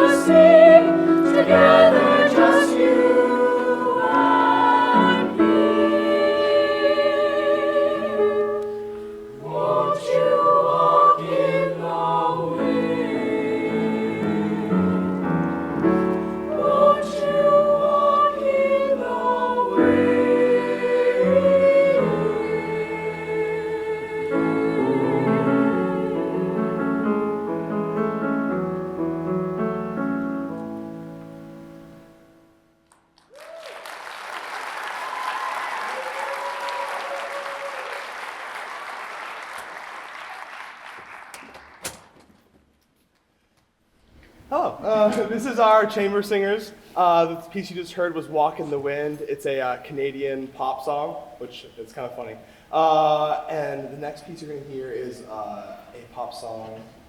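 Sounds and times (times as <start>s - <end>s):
choir singing held chords: 0.0s - 32.2s
audience applauding: 32.9s - 42.2s.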